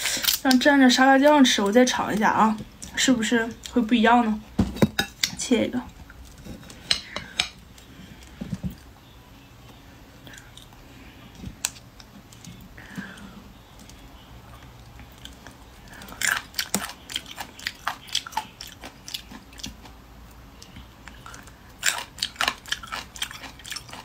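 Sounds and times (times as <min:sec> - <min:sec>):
crunching and chewing: 0:13.8 - 0:24.0.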